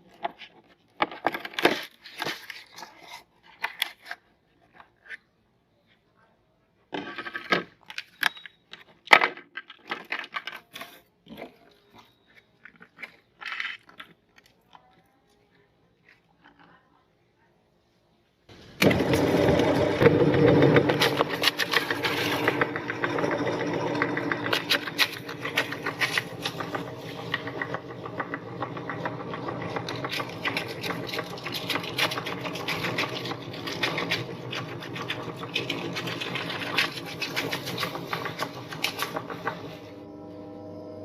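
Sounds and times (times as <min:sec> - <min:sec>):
crackling and crunching of grinding: 0:07.0 - 0:15.0, 0:18.5 - 0:39.8
meat grinder motor humming: 0:18.5 - 0:41.0.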